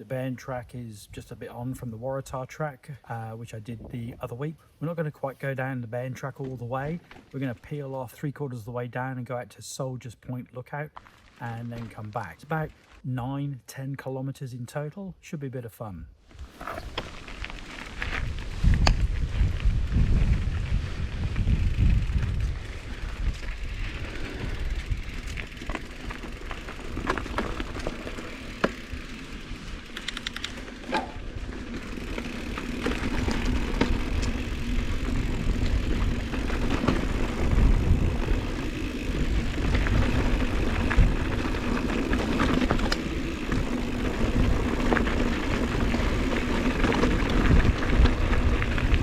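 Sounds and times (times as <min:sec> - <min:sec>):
bike tyres on dirt: 0:03.3 - 0:09.2, 0:10.6 - 0:13.2, 0:16.2 - 0:49.0
wind rumbling on microphone: 0:16.3 - 0:49.0
bike clicks and rattles: 0:16.4 - 0:49.0.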